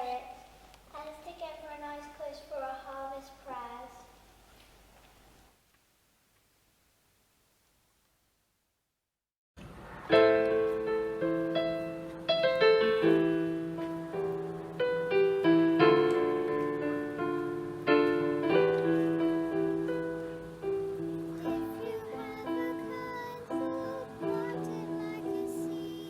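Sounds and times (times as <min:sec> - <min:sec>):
piano playing slow chords: 0:10.0 - 0:26.0.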